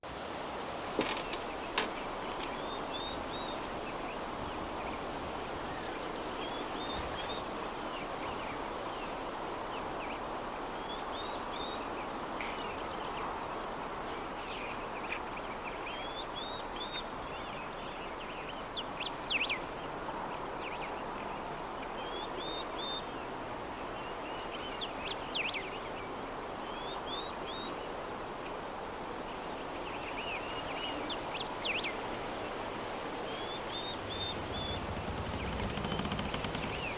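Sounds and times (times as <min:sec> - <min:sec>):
soft breeze: 0:00.0 - 0:36.9
small birds chirping: 0:29.3 - 0:36.9.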